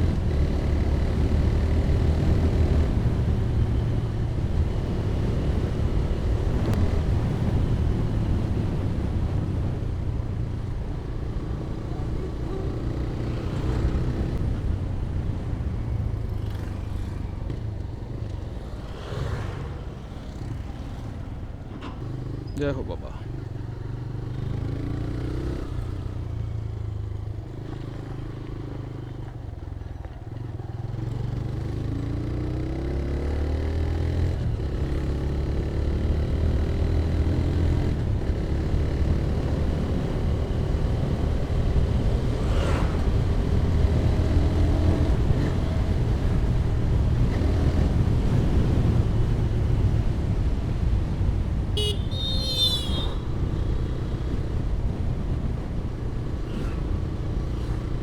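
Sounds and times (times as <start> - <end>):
motorcycle engine accelerating: 23.3 - 58.0
high-pitched horn: 51.8 - 53.3.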